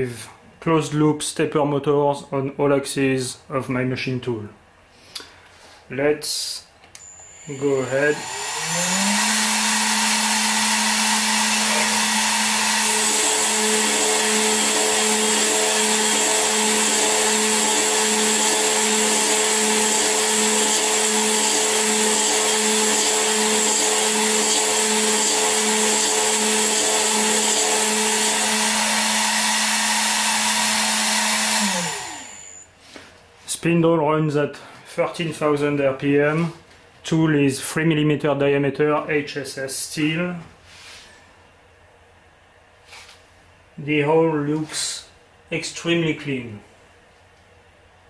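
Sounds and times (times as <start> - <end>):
cutter milling with pulsing tone: 7.0 - 32.6
milling machine spindle whine: 7.0 - 32.6.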